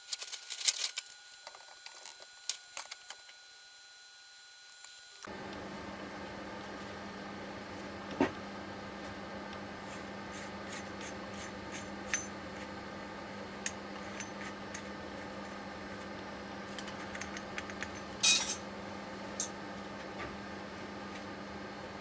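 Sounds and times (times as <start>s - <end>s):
steady low hum: 4.6s - 22.0s
metal tools clinking: 17.1s - 18.6s.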